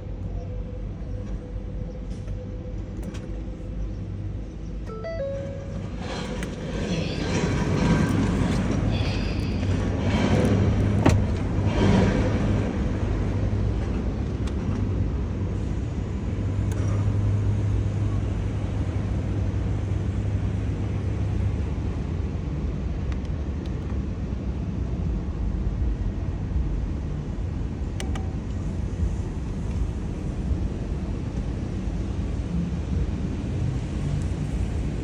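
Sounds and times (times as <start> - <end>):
engine and road hum: 0.0 - 35.0.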